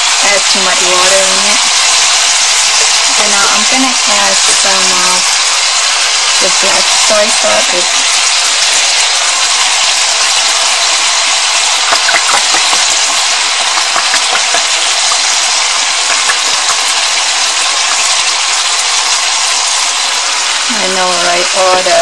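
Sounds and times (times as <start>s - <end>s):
bones sizzling in hot oil: 0.0s - 22.0s
utensil clicking against pan: 11.6s - 17.2s.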